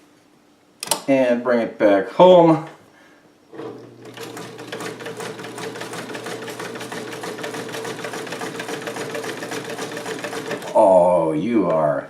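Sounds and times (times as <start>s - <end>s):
sewing machine motor humming: 3.5s - 11.0s.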